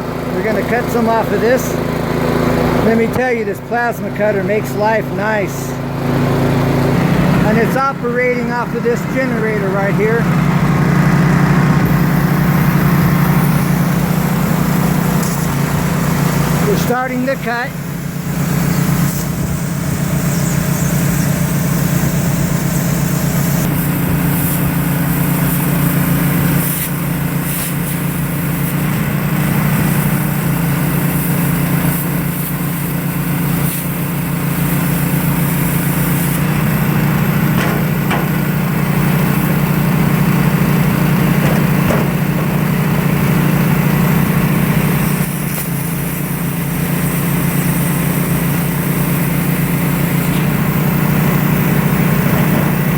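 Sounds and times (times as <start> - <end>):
generator engine running: 0.0 - 52.9
plasma cutter hissing: 11.8 - 52.9.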